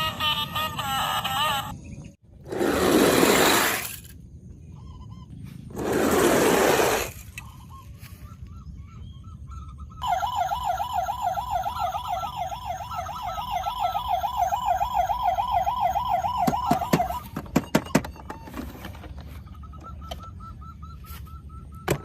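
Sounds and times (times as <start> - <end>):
electronic toy siren warbling: 9.5 - 18.9.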